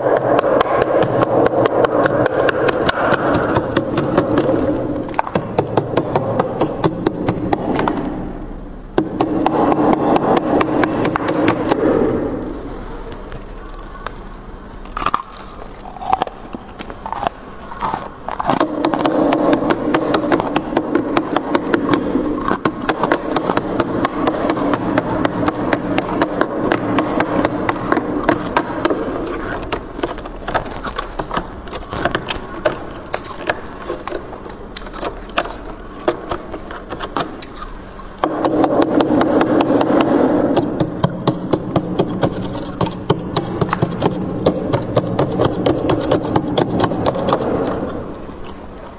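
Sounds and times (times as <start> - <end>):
crackling frost clicks: 11.1 - 19.0, 27.9 - 38.2.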